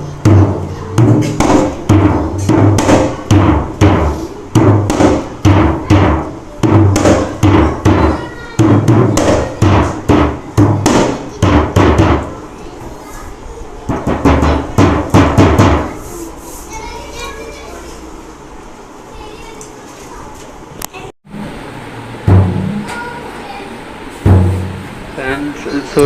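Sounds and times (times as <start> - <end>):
drum strokes deep and high: 0.0 - 12.9, 13.8 - 16.4, 21.3 - 26.0.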